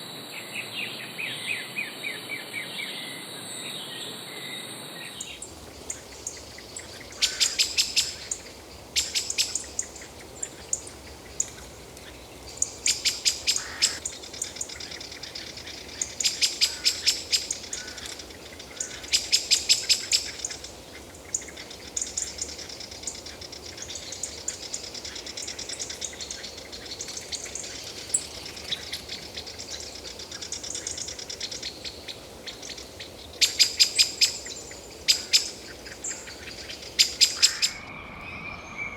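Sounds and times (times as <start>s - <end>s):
faint high bird calls: 0.0s - 38.9s
forest hiss: 0.0s - 38.9s
bird calling in sharp bursts: 5.8s - 10.9s, 12.6s - 20.7s, 33.4s - 38.9s.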